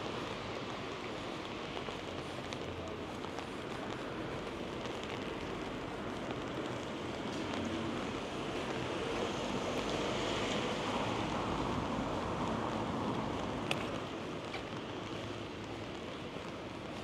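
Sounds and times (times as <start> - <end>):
rain on wet pavement: 0.0 - 17.0.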